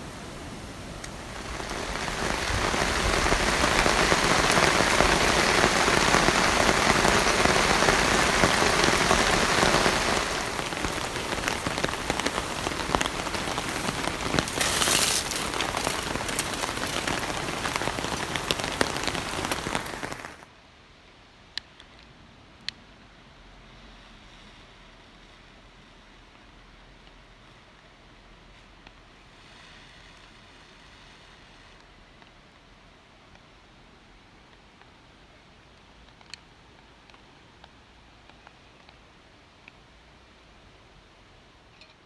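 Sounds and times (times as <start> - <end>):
heavy rain: 0.0 - 20.5.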